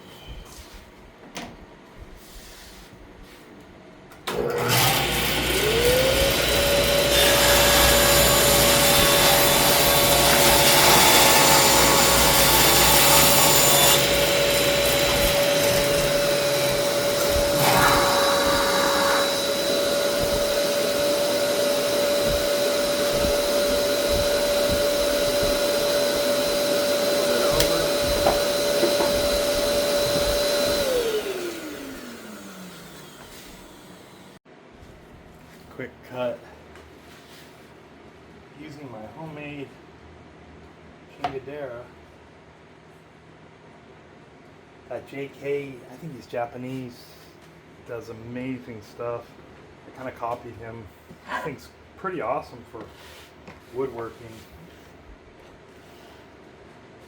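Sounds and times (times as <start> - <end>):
power tool motor whining: 4.3 - 34.4
wood grinding on tool: 4.4 - 33.9.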